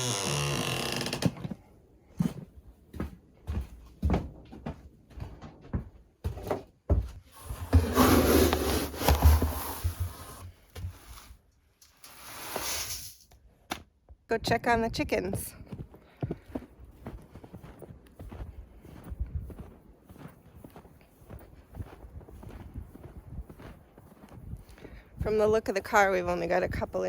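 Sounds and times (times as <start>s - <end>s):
footsteps crunching through snow: 7.3s - 11.4s, 15.6s - 27.0s.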